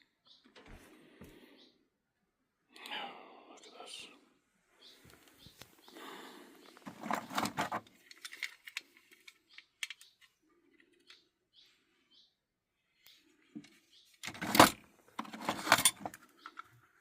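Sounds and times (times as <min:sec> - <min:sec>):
rustling of handled objects: 0:06.6 - 0:10.0, 0:14.1 - 0:17.0.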